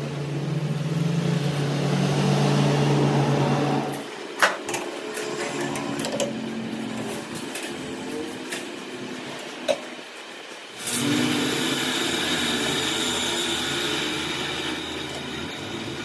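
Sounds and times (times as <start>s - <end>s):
machine motor humming: 10.7s - 16.0s.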